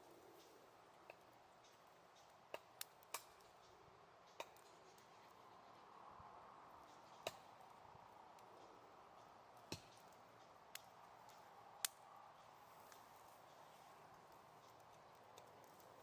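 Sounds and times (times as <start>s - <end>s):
wood fire crackling and popping: 1.0s - 3.6s, 9.6s - 12.0s, 14.1s - 16.0s.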